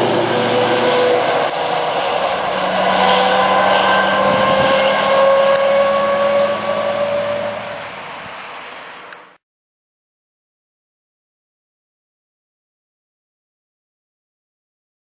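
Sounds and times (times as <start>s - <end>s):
truck engine accelerating: 0.0s - 9.4s.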